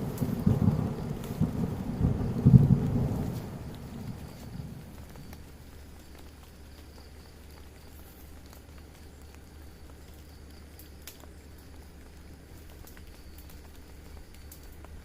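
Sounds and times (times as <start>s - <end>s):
thunder rumble: 0.0s - 6.0s
steady rain: 0.0s - 15.0s.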